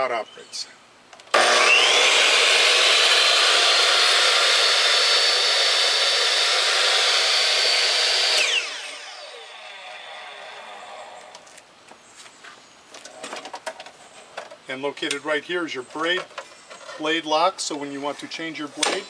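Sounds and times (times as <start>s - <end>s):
miter saw running: 1.3s - 11.4s
saw winding down whine: 1.3s - 11.5s.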